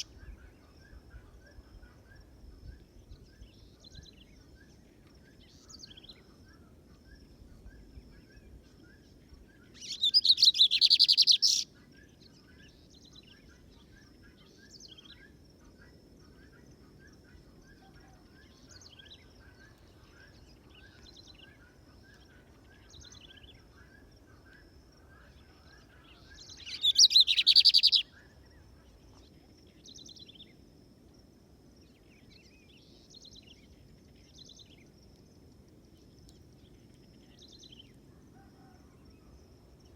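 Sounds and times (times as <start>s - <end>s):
bird singing trilled phrases: 0.0s - 0.3s, 9.6s - 11.7s, 26.1s - 28.4s
faint bird chirps: 0.0s - 30.6s, 35.9s - 39.9s.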